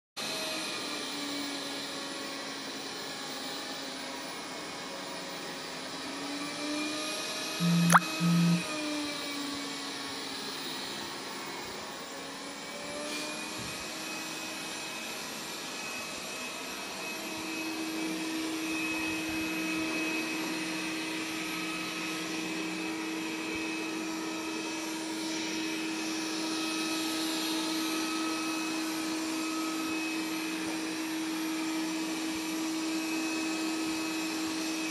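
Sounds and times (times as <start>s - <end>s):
short loud tones: 7.6s - 8.6s.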